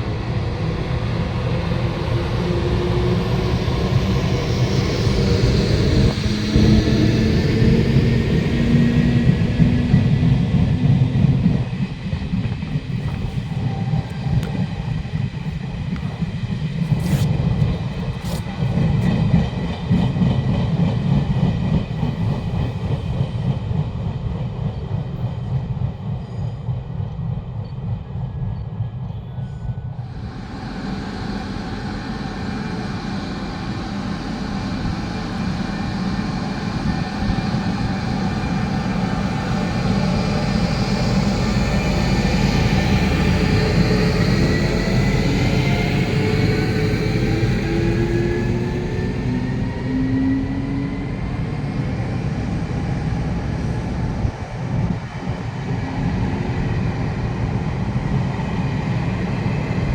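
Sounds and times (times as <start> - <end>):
train rumbling on rails: 0.0 - 59.9.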